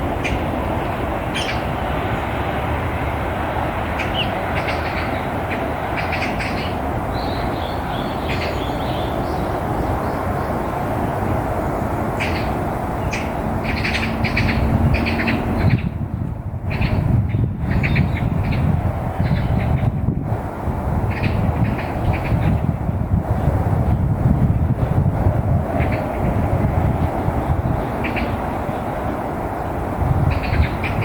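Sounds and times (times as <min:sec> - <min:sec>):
road traffic rush: 0:00.0 - 0:31.0
small birds chirping: 0:04.0 - 0:10.6.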